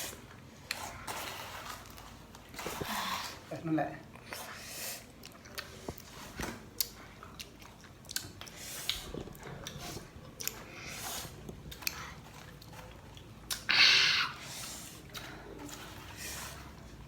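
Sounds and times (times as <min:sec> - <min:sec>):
person chewing fruit: 0:04.1 - 0:17.0.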